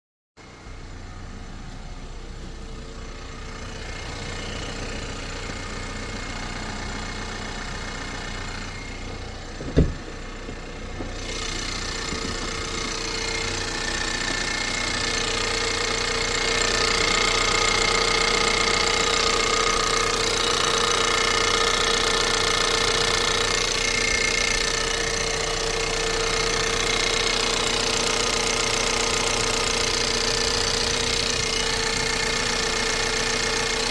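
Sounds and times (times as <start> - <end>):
car engine idling: 0.4 - 33.9
sharp low thump: 9.1 - 11.2.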